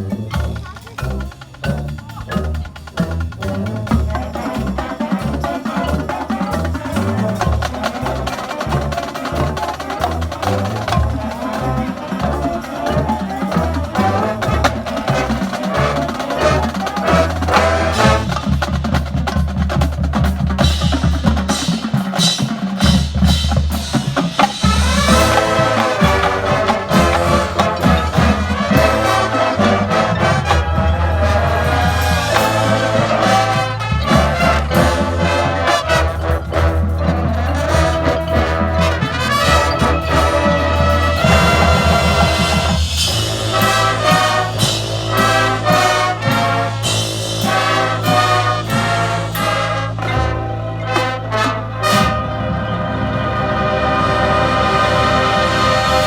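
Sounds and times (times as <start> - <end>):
brass and wind held notes: 0.0 - 56.0
marching band drums: 0.0 - 56.0.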